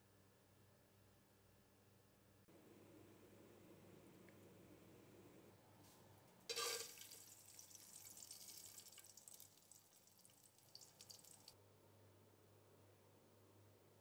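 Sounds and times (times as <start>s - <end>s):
oil crackling sizzle: 6.5s - 11.6s
raisins splashing into hot oil: 6.5s - 11.6s.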